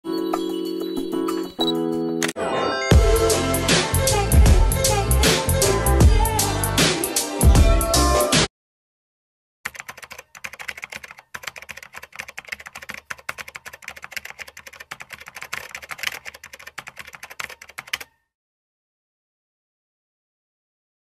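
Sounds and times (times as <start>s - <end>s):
keyboard typing: 9.7s - 18.2s.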